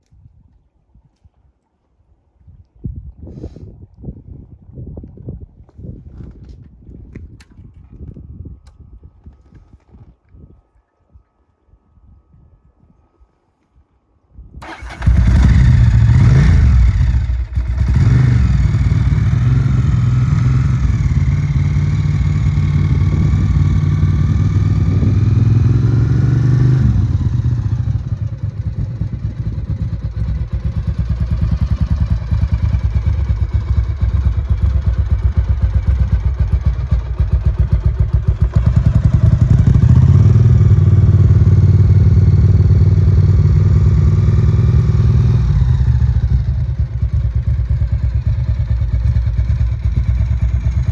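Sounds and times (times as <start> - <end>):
motorcycle engine idling: 14.6 - 50.9.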